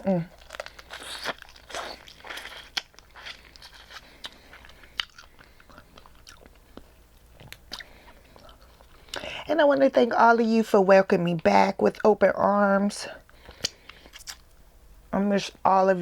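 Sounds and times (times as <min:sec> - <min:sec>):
chewing: 0:00.3 - 0:09.2, 0:13.4 - 0:14.4.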